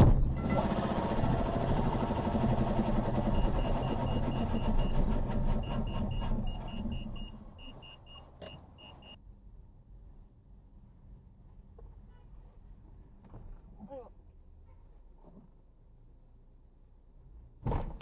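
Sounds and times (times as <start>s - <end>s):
vehicle noise: 0.0s - 17.7s
high electronic warning beeps: 5.6s - 9.2s.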